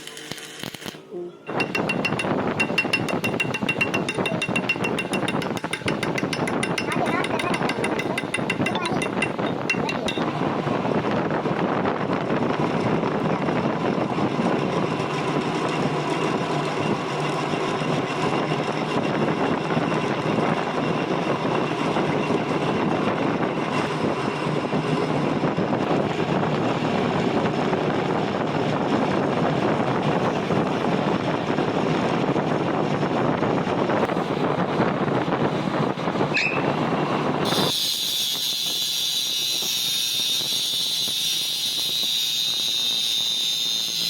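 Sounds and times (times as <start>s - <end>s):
welding arc crackling: 0.0s - 1.0s.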